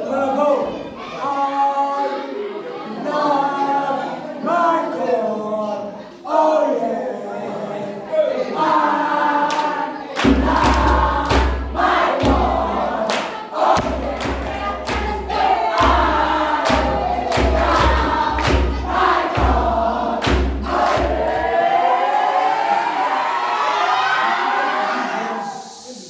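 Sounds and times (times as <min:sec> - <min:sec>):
choir singing gospel song: 0:00.0 - 0:26.0
percussive strikes: 0:10.2 - 0:21.5.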